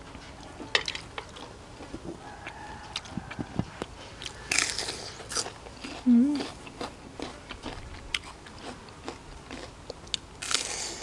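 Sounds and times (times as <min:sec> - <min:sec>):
person biting and chewing food: 0:03.0 - 0:11.0.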